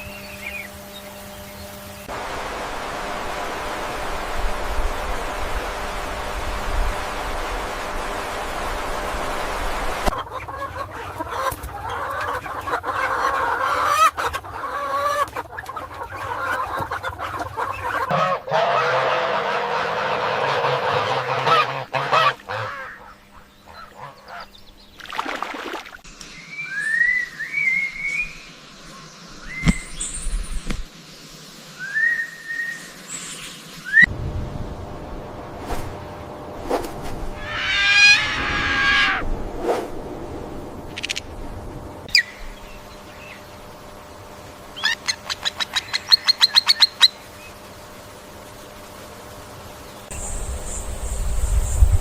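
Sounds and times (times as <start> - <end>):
domestic fowl calling: 9.9 - 24.5, 37.4 - 39.3, 44.7 - 47.4.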